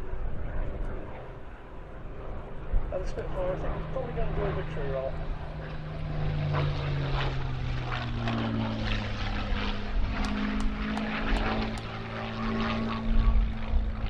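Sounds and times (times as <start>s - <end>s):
low rumbling wind gusts: 0.0s - 14.0s
piston aircraft engine running: 0.0s - 14.0s
sharp clicks: 10.2s - 12.0s.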